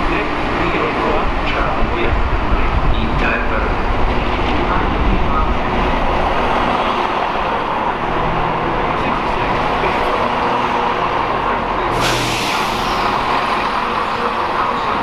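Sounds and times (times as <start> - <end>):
diesel train engine drone: 0.0 - 15.0
air hiss: 12.0 - 13.0
rolling carriages: 12.8 - 15.0.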